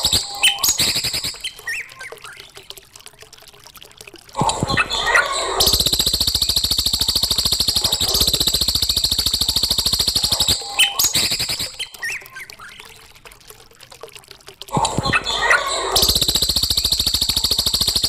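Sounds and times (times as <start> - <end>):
songbird rattling trill: 0.0 - 1.9, 5.6 - 12.4, 15.9 - 18.0.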